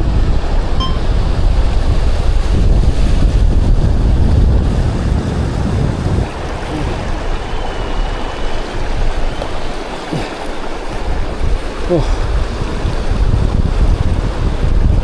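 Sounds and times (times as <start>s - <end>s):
wind buffeting microphone: 0.0s - 15.0s
mountain stream rushing: 3.2s - 15.0s.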